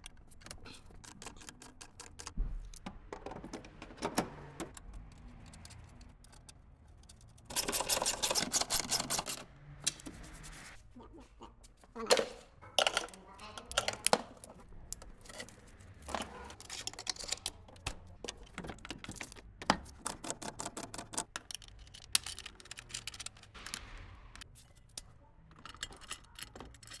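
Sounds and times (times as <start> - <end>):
metallic clicks of small parts: 0.0 - 2.9, 4.7 - 10.0, 12.8 - 27.0.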